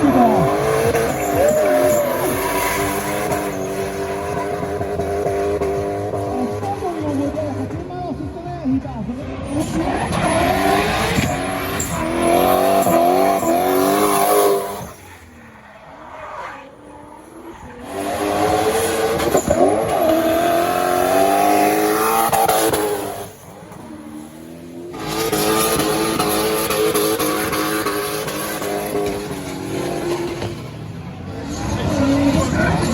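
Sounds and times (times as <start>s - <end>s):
tyres squealing: 0.0s - 6.9s, 9.6s - 15.4s
engine revving hard: 0.0s - 7.7s, 9.5s - 15.0s, 17.8s - 23.4s, 24.8s - 30.6s.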